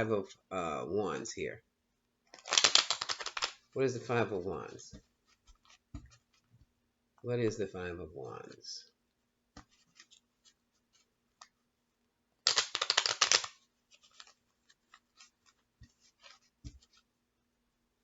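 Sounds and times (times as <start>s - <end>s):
cards clicking and tapping: 2.3s - 3.6s, 12.5s - 17.0s
cards being shuffled: 2.3s - 3.7s, 4.9s - 6.6s, 9.6s - 11.6s, 12.5s - 17.1s.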